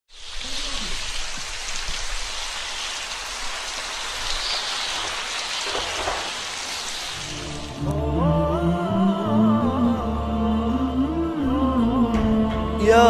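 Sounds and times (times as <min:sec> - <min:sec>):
steady rain falling: 0:00.1 - 0:07.9.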